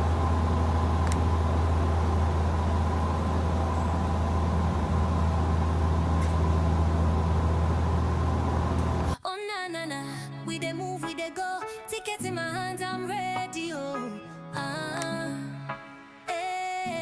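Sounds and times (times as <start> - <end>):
helicopter engine and rotors: 0.0 - 9.2
high whine: 0.0 - 9.2.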